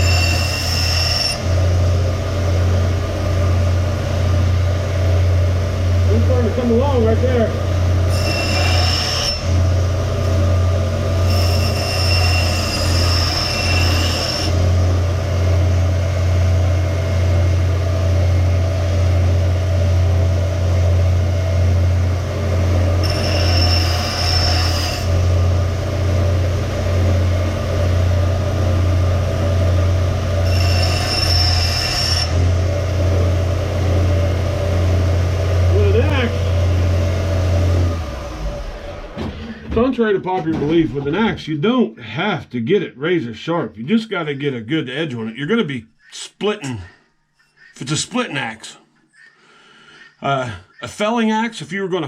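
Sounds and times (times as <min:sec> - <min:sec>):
high squealing of grinding steel: 0:00.0 - 0:01.9, 0:06.1 - 0:09.9, 0:10.5 - 0:14.8, 0:22.6 - 0:33.6, 0:47.2 - 0:48.5
power grinder humming: 0:00.0 - 0:39.2.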